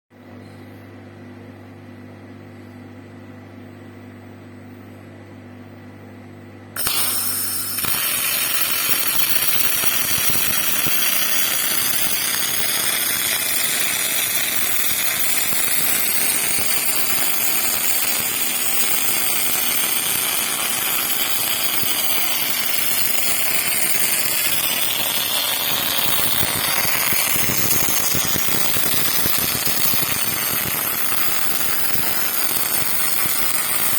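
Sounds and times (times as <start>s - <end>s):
electrical hum: 0.2s - 33.9s
arc welding crackle and sizzle: 6.8s - 33.9s.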